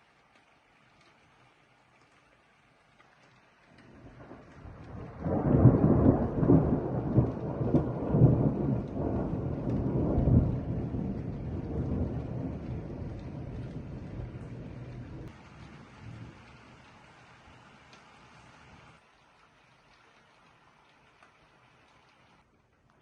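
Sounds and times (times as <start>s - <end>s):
thunder rolling: 3.8s - 16.9s.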